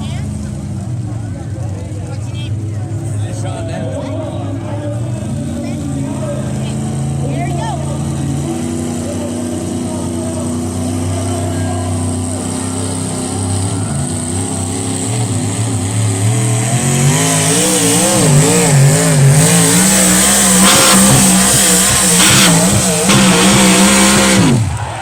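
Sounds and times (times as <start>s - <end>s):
tractor engine under load: 5.8s - 25.0s.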